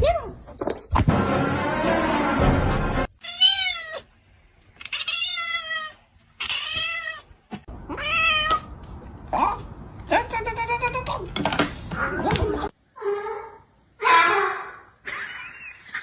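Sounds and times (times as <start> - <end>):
cat meowing: 3.1 - 4.1, 7.9 - 8.7.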